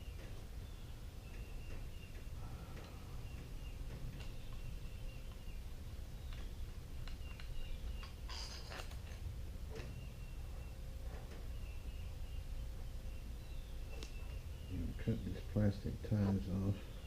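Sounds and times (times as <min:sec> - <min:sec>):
low background hum: 0:00.0 - 0:17.0
small clicks and rattle of parts: 0:01.3 - 0:05.5, 0:06.2 - 0:10.0.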